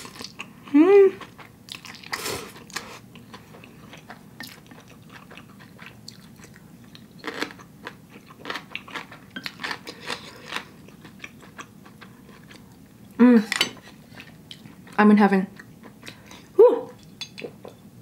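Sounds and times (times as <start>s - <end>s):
person chewing noodles: 0.0s - 12.8s.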